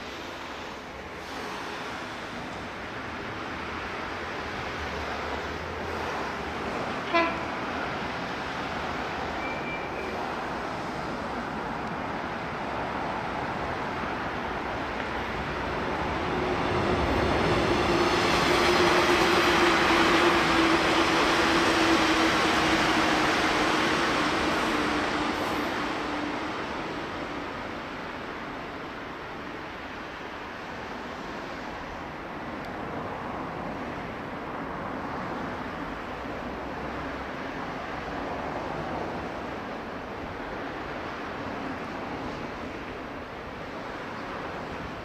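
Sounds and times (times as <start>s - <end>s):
train passing: 0.0s - 45.0s
train horn toot: 7.0s - 7.5s.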